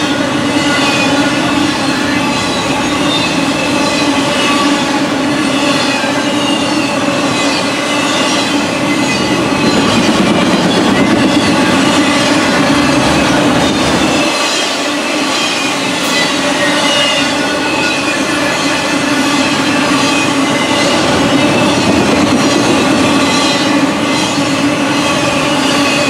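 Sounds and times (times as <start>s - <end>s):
train wheels rumbling on rail: 0.0s - 26.0s
wheels squealing: 0.0s - 26.0s.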